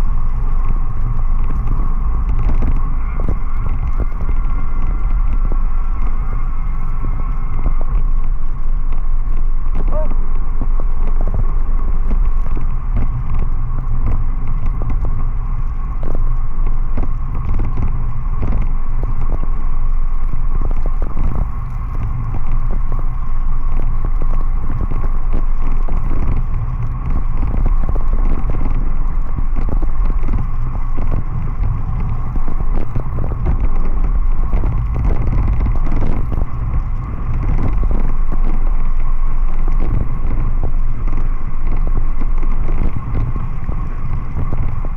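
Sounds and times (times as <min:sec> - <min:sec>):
rain crackling on camera: 0:00.0 - 0:44.9
thin constant whine: 0:00.0 - 0:44.9
wind and road rumble: 0:00.0 - 0:44.9.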